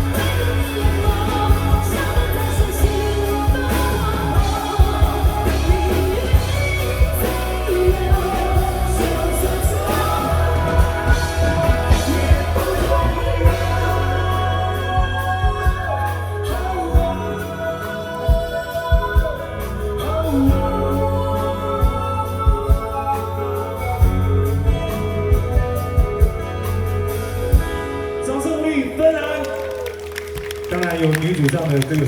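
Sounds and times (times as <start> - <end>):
gliding melody line: 0.0 - 18.8
steady drum beat: 0.0 - 23.0
person singing: 0.0 - 26.7
heavy bass: 0.0 - 27.9.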